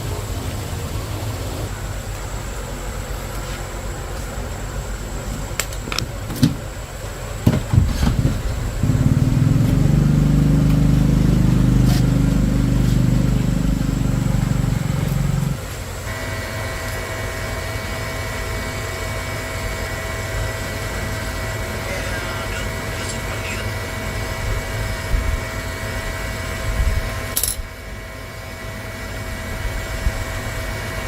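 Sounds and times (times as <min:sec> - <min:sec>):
higher steady hum: 0:00.0 - 0:31.0
motor droning: 0:00.0 - 0:31.0
knocks: 0:07.4 - 0:09.1.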